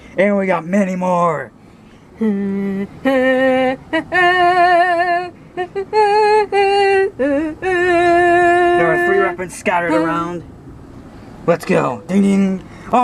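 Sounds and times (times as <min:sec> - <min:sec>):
person breathing: 0:01.6 - 0:02.2, 0:12.6 - 0:13.0
person singing long notes: 0:02.2 - 0:10.2.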